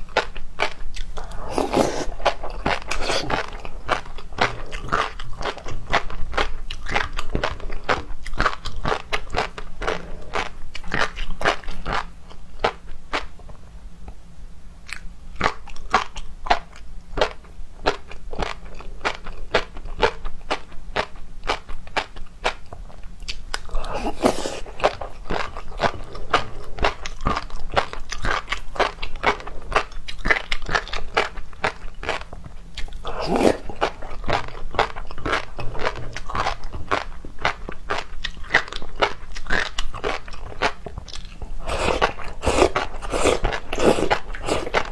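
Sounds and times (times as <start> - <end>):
chewing and biting seafood: 0.1 - 12.8, 23.2 - 44.9.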